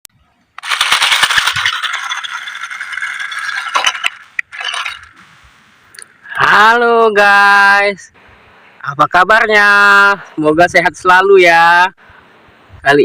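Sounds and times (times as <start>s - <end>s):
dense rattling and scraping: 0.6s - 5.3s.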